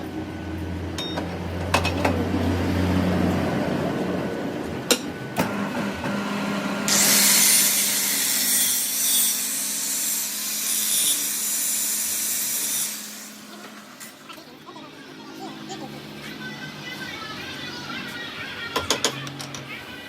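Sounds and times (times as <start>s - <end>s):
tool grinding against metal: 6.9s - 13.4s.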